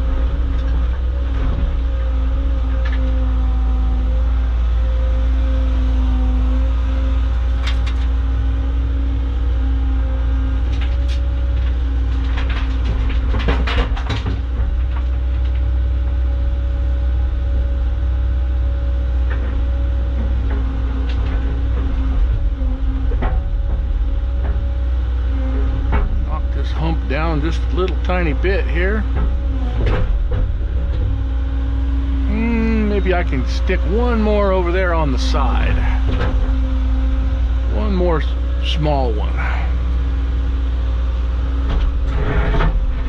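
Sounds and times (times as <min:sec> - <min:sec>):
excavator diesel engine: 0:00.0 - 0:43.0
metal clanks and scraping: 0:10.7 - 0:15.6, 0:20.2 - 0:31.2, 0:32.9 - 0:36.7, 0:41.6 - 0:43.0.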